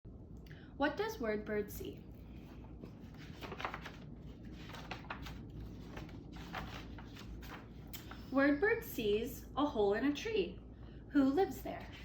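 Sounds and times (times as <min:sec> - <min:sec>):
low room hum: 0:00.1 - 0:12.0
book pages rustling: 0:02.0 - 0:08.3.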